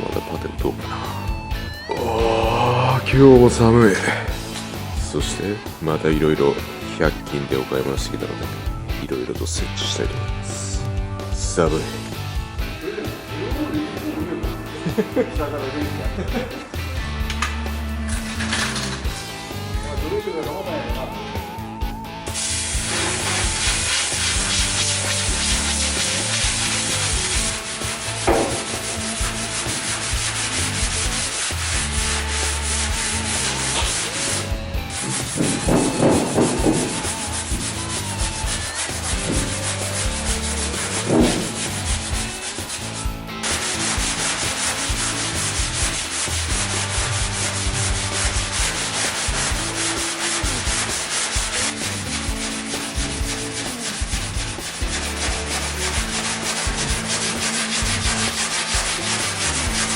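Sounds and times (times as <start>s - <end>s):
sanding car bodywork: 22.3s - 59.9s.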